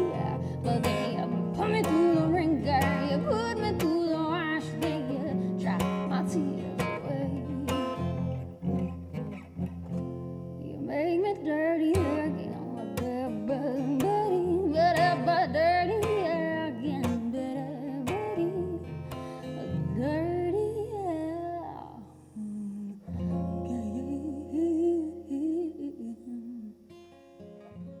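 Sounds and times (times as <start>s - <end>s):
person singing wordlessly: 0.0s - 8.0s, 10.6s - 18.8s
strummed acoustic guitar: 0.0s - 22.3s, 23.0s - 25.3s, 26.9s - 28.0s.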